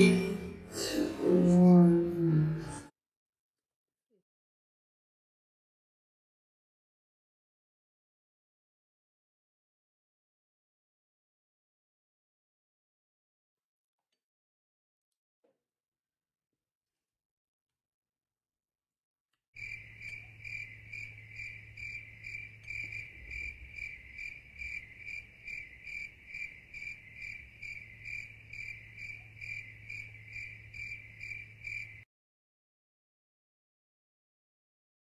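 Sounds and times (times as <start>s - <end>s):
cricket chirping: 19.6s - 32.1s.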